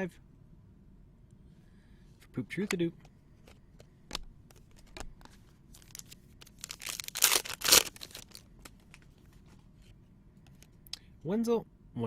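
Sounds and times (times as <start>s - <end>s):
cards clicking: 2.6s - 9.1s
wrapper rustling and tearing: 4.6s - 9.2s.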